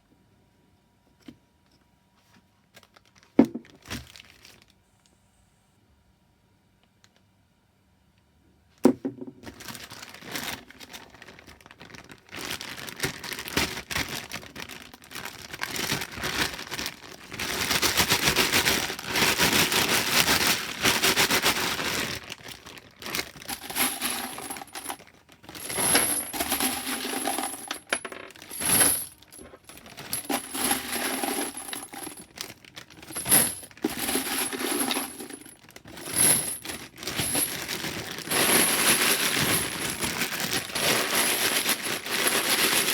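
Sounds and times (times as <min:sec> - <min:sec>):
brass cases clinking and rattling: 0:23.2 - 0:42.9.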